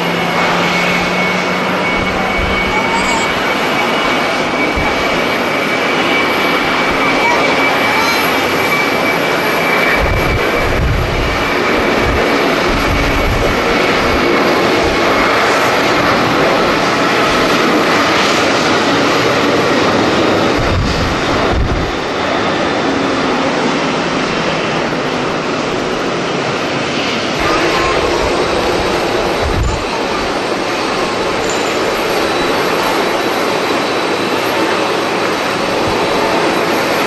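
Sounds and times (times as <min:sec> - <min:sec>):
faint high whine: 0:00.0 - 0:10.6
jet engines roaring: 0:00.0 - 0:37.0
wind buffeting microphone: 0:00.0 - 0:37.0.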